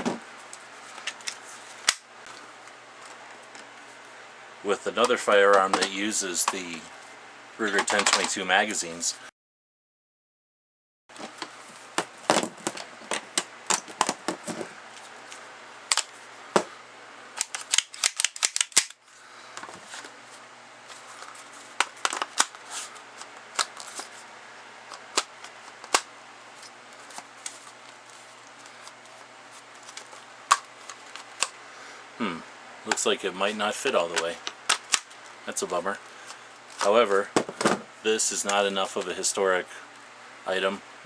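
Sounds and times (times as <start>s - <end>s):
plastic magazine and gun clicking: 17.4s - 19.0s.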